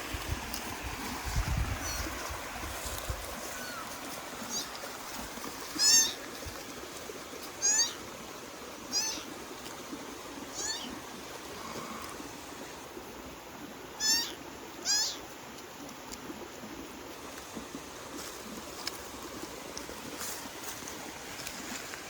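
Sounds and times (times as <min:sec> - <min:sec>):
kitten mewing: 0:10.6 - 0:10.9.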